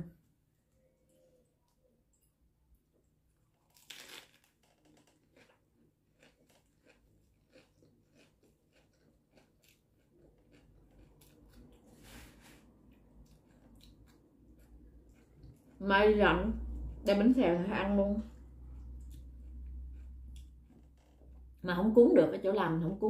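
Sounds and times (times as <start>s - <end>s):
crunching and chewing: 3.4s - 15.9s, 18.3s - 21.6s.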